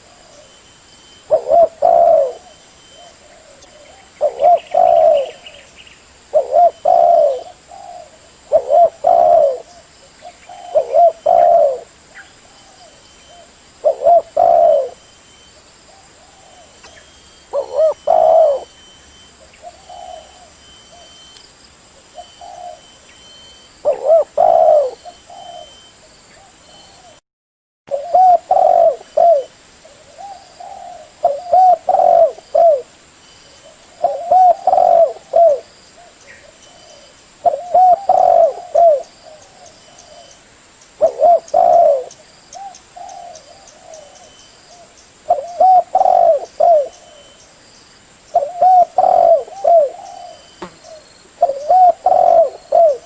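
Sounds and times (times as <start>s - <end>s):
dove cooing: 1.2s - 5.7s, 6.3s - 15.1s, 15.9s - 21.3s, 22.0s - 27.2s, 27.9s - 32.9s, 33.6s - 40.4s, 41.0s - 47.4s, 48.3s - 53.0s.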